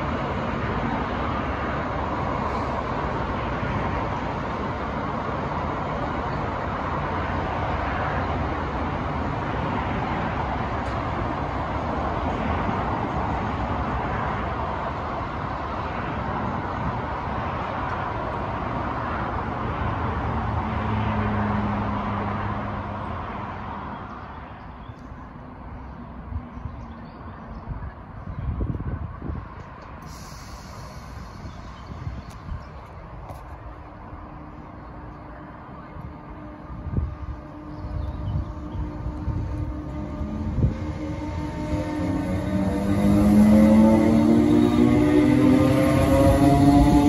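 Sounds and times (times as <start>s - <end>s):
low hum: 30.0s - 47.0s.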